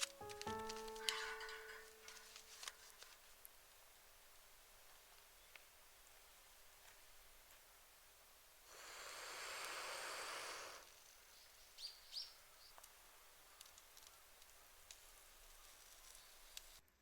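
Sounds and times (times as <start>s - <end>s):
bird chirping: 11.0s - 16.8s.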